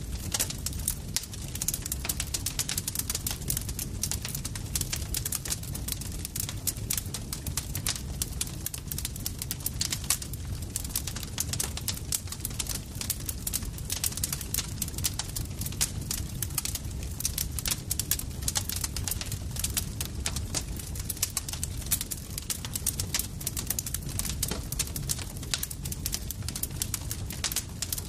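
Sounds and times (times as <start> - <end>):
campfire crackling: 0.0 - 28.0.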